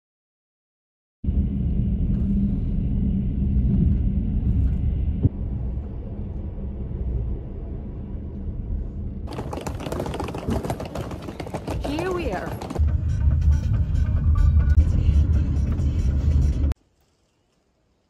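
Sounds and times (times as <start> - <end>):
moving train rumble: 1.3 - 16.8
suitcase wheels on paving stones: 9.3 - 12.8.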